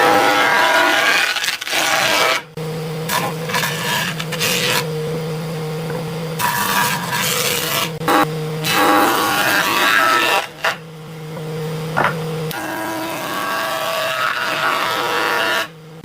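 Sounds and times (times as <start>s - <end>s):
power tool motor hum: 0.0s - 16.0s
tool scraping into log: 3.1s - 4.9s.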